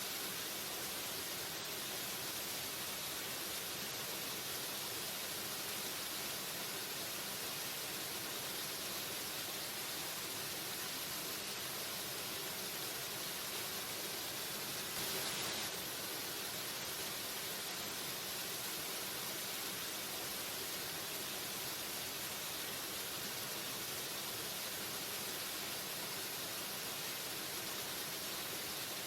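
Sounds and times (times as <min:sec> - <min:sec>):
waterfall rushing: 0:14.8 - 0:18.1.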